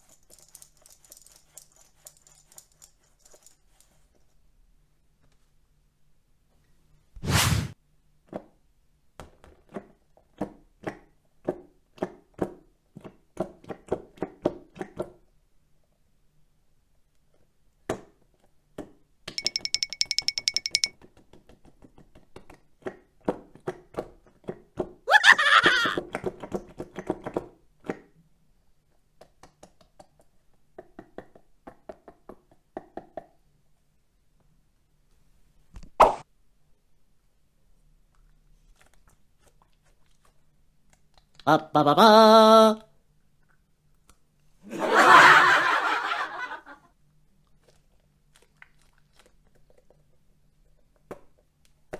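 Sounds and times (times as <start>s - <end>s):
light taps with ringing tone: 19.3s - 21.0s.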